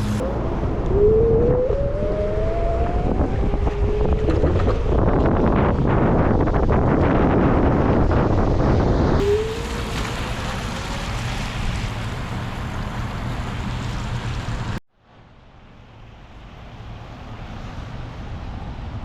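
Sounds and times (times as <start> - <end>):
faint rising whine: 0.0 - 6.2
wind buffeting microphone: 0.0 - 14.8.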